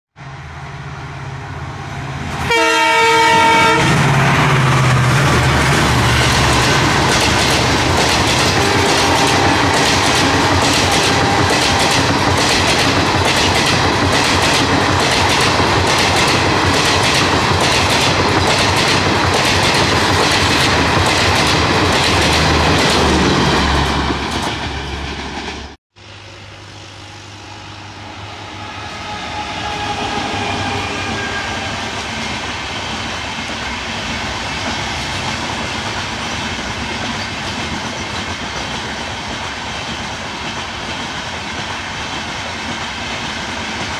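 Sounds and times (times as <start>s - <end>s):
passenger train passing: 0.2s - 43.9s
train wheels clickety-clack: 2.3s - 25.8s, 30.0s - 43.9s
locomotive horn: 2.4s - 4.2s, 8.5s - 12.2s, 26.6s - 32.0s.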